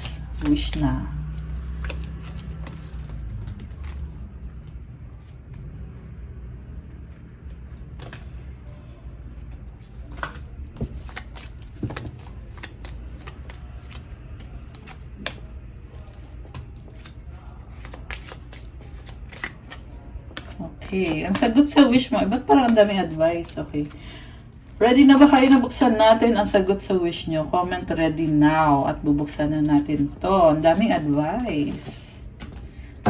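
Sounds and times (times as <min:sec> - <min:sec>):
cards being shuffled: 0:00.0 - 0:04.4, 0:07.3 - 0:24.1
low room hum: 0:00.0 - 0:33.0.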